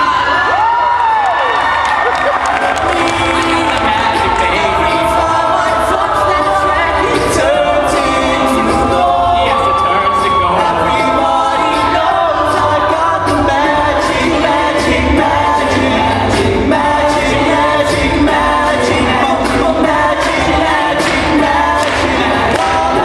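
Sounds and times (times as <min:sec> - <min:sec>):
a cappella group singing: 0:02.6 - 0:23.0
sharp percussive hits: 0:10.8 - 0:23.0.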